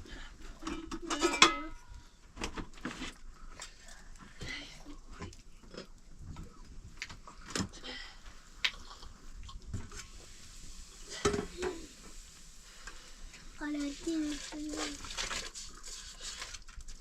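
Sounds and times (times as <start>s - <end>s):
dishes and utensils clinking: 0.6s - 1.9s.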